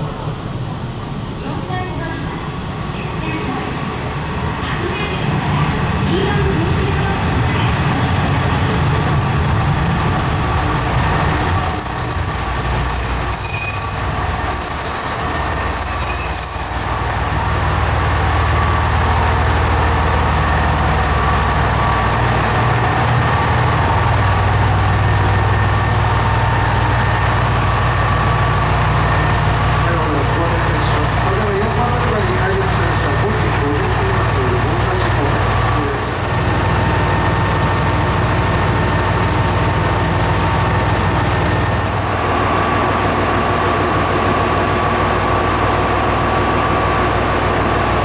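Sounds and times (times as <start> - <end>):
low rumble of running train: 0.0 - 48.0
train wheel squeal: 2.4 - 5.1, 6.2 - 17.2.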